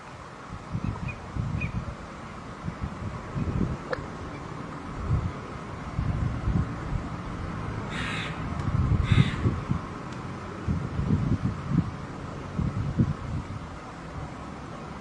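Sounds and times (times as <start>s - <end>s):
crow cawing: 7.9s - 8.4s, 9.0s - 9.5s.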